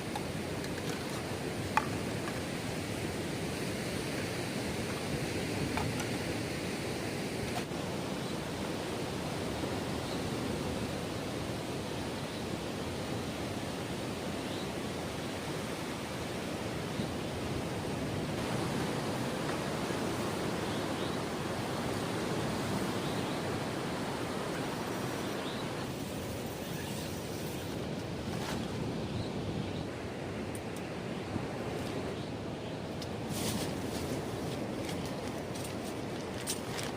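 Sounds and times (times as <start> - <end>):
sea waves breaking on beach: 17.3 - 28.9.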